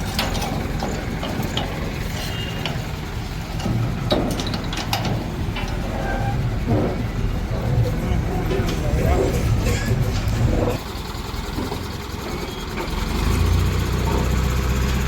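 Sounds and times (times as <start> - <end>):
metallic clicks and clanks: 0.0 - 10.8
diesel engine rumble: 0.0 - 15.0.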